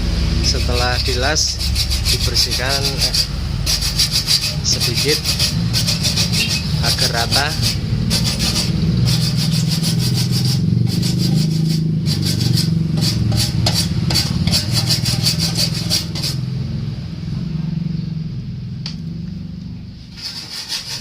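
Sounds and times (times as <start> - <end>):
steady low hum: 0.0 - 21.0
scraping strokes on metal: 0.4 - 16.5, 20.0 - 21.0.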